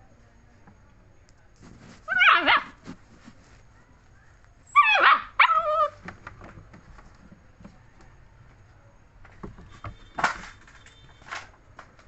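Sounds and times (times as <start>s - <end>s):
puppy yelping whines: 2.1s - 2.8s, 4.7s - 6.0s.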